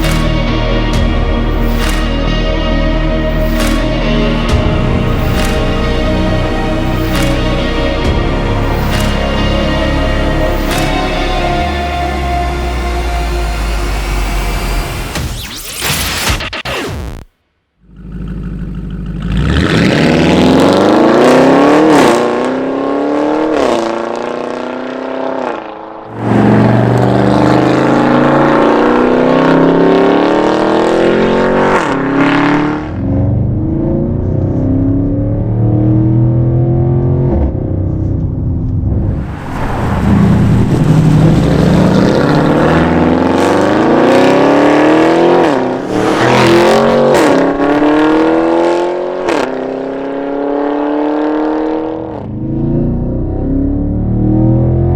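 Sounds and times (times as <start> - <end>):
car engine accelerating hard: 17.8 - 54.9.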